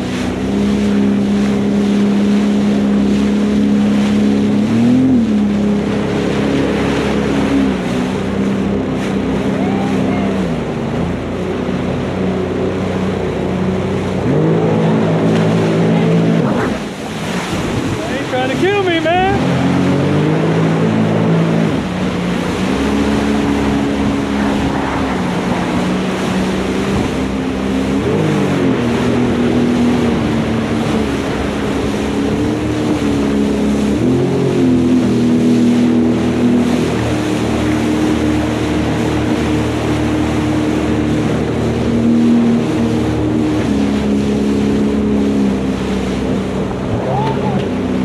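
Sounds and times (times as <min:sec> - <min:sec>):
jet ski engine running: 0:00.0 - 0:48.0
wind and water rushing: 0:00.0 - 0:48.0.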